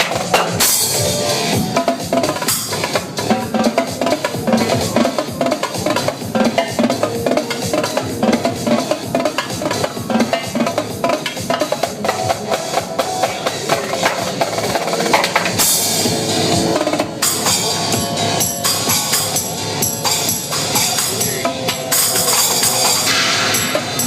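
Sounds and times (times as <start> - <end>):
drum kit playing: 0.0 - 24.0
electronic dance music: 0.0 - 24.0
cymbal wash: 15.6 - 24.0.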